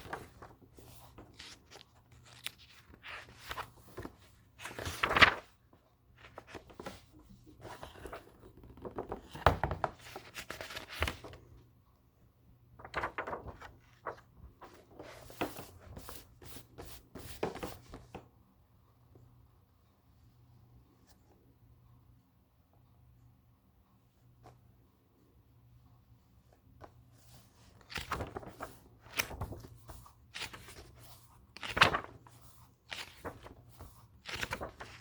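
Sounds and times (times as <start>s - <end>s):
book pages rustling and turning: 0.0s - 11.6s, 12.8s - 18.3s, 26.4s - 35.0s.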